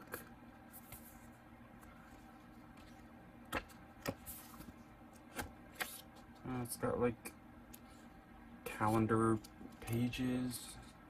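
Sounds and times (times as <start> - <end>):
paper notebook rustling: 0.1 - 6.4.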